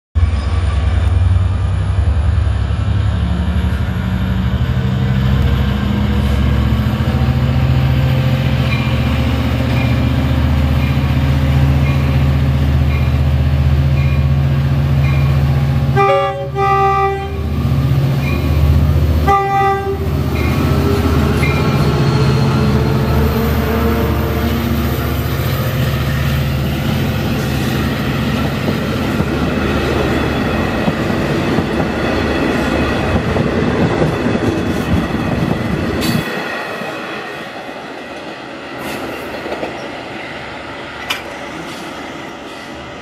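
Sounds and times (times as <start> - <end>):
diesel train engine drone: 0.2 - 43.0
train horn blasts: 15.9 - 17.6, 19.2 - 20.2.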